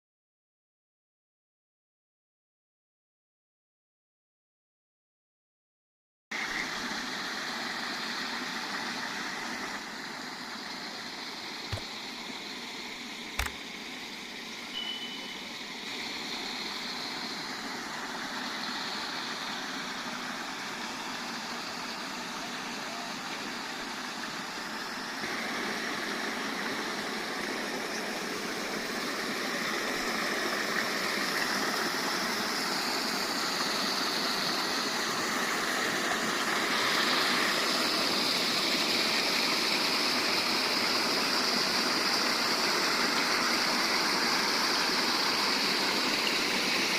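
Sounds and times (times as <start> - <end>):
sharp click: 13.4 - 13.6
rainwater rushing: 15.7 - 46.9.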